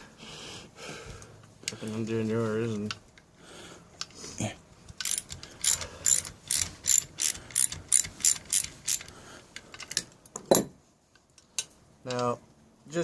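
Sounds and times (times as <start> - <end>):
socket ratchet clicking: 4.9 - 9.1.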